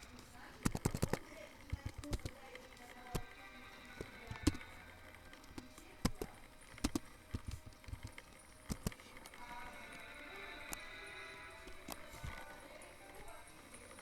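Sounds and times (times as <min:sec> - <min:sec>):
sharp knocks and clicks: 0:00.0 - 0:02.4, 0:04.0 - 0:04.8, 0:05.4 - 0:09.0
faint steady background noise: 0:00.0 - 0:14.0.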